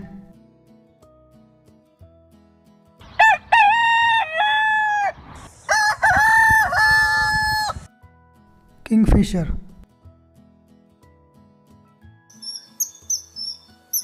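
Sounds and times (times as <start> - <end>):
rooster crowing: 3.1 - 7.9.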